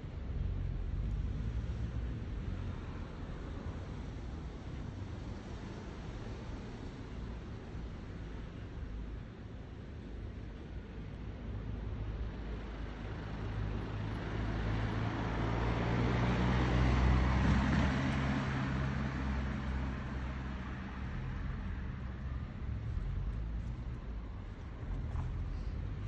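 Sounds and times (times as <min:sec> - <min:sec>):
vehicle passing by: 0:12.6 - 0:26.0.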